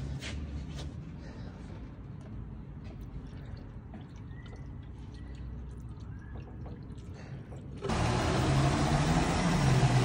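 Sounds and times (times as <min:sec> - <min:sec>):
car engine running: 0:07.8 - 0:10.0.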